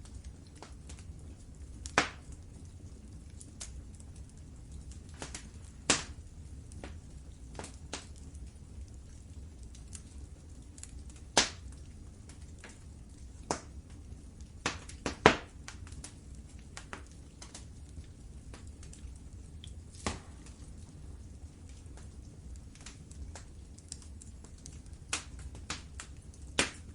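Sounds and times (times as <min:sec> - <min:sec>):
wood fire crackling: 0:00.0 - 0:26.9.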